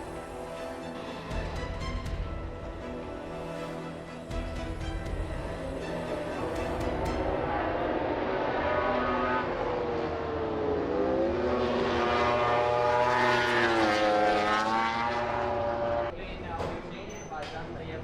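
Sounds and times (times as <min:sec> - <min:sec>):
racing motorcycle engines passing: 0:05.4 - 0:16.2.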